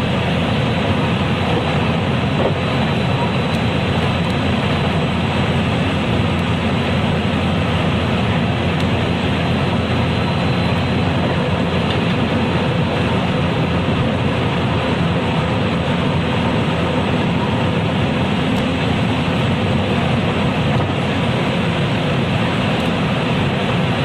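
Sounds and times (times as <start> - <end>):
train wheels rumbling on rail: 0.0 - 24.0
faint high whine: 5.2 - 13.4.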